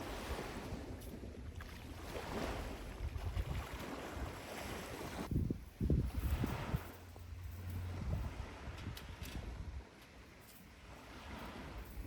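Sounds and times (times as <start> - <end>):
sea waves washing onto beach: 0.0 - 5.3
wind buffeting microphone: 2.3 - 9.9.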